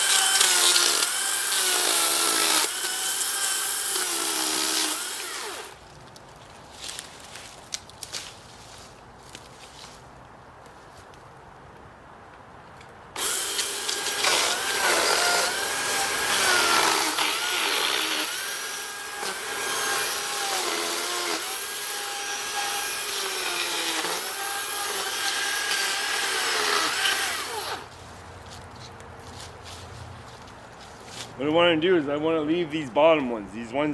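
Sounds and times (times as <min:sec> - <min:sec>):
electric chainsaw cutting wood: 0:00.0 - 0:05.8, 0:13.2 - 0:27.9.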